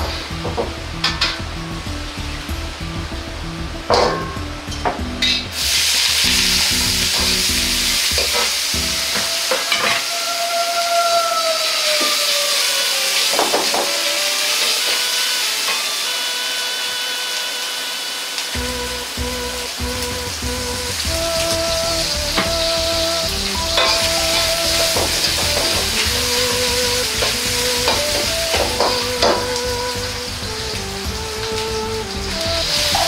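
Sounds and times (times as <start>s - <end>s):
sausages sizzling in hot oil: 0.0s - 33.0s
metal ladle clanking on wok: 3.9s - 4.5s.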